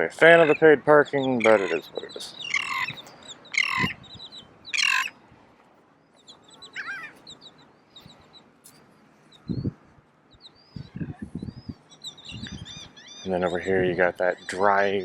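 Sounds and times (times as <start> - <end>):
loud harsh bird call: 0.2 - 5.2, 6.2 - 9.7, 10.4 - 15.0
high bird chirps: 0.4 - 5.2, 6.0 - 15.0.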